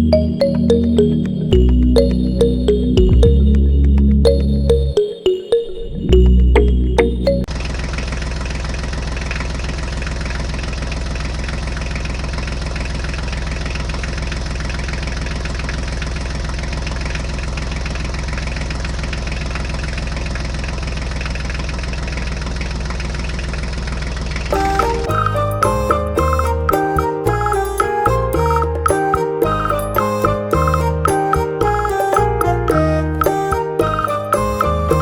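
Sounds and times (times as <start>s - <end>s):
tractor engine idling: 7.4s - 25.9s.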